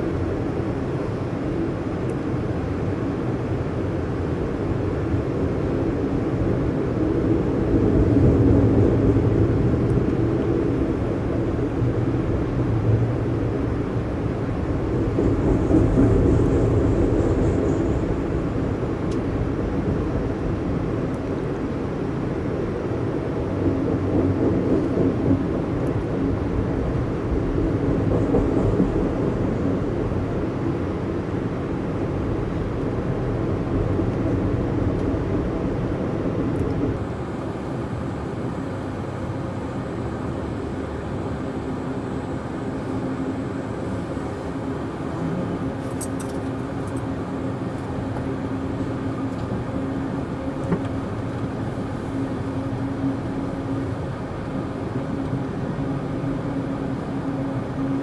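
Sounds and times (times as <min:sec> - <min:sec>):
train wheels rumbling on rails: 0:06.3 - 0:21.7, 0:22.9 - 0:37.1
train car noise: 0:14.2 - 0:19.9.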